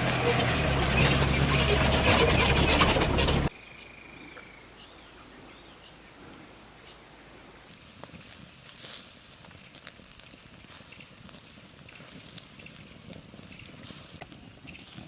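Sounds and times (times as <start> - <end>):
motor running loudly: 0.0 - 3.5.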